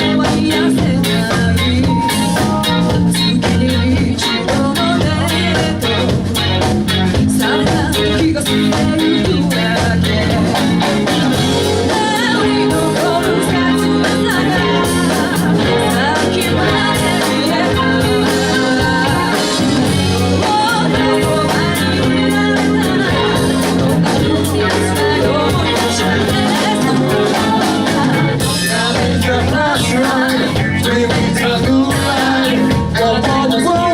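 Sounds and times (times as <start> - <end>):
bass line: 0.0 - 33.9
guitar: 0.0 - 33.9
person singing lead vocal: 0.0 - 33.9
steady drum beat: 0.0 - 33.9.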